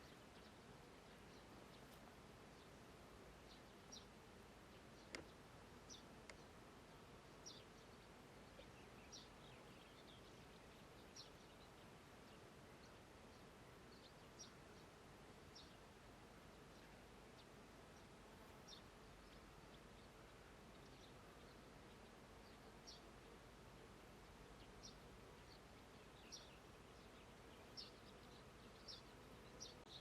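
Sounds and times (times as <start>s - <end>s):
low hiss: 0.0s - 30.0s.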